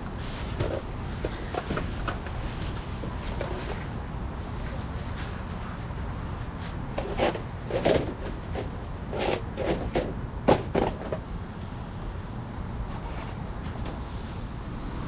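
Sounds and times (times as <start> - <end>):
tent handling clatters and scrapes: 0.2 - 11.3
steady low rumble: 12.0 - 15.0.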